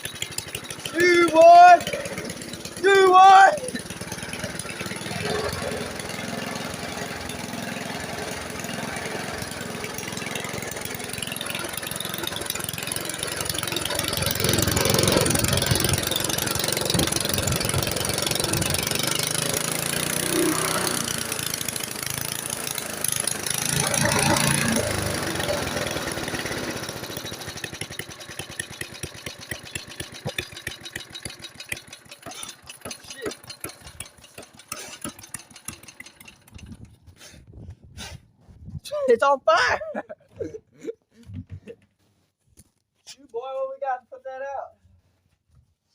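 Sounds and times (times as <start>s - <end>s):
lawn mower engine running: 0.0s - 37.4s.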